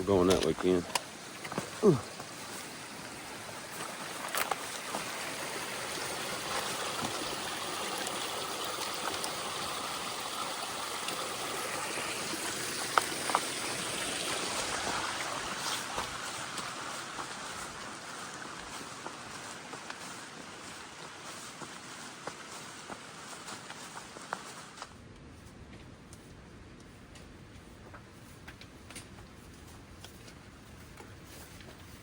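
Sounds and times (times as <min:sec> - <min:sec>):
creek water rushing over rocks: 0:00.0 - 0:24.8.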